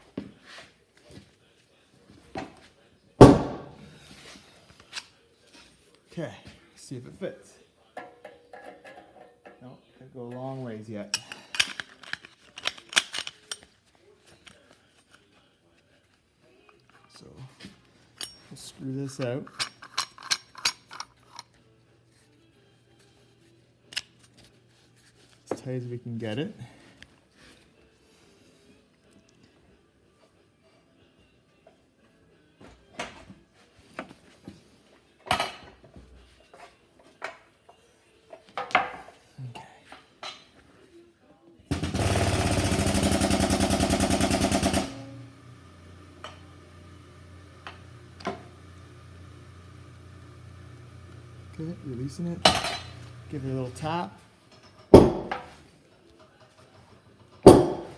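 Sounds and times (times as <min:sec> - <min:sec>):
metal exhaust parts clinking: 0:18.2 - 0:18.7, 0:41.7 - 0:55.6.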